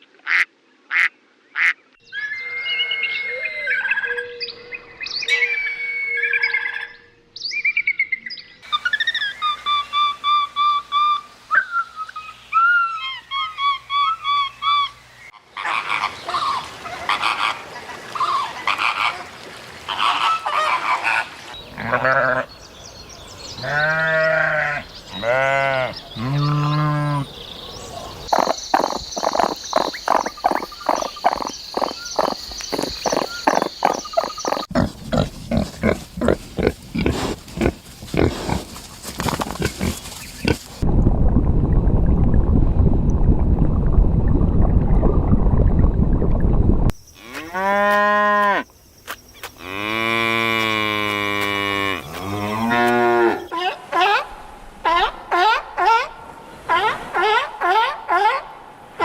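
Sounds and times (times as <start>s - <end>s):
long wavering animal calls: 2.1s - 7.1s
short chirping animal calls: 28.2s - 34.8s.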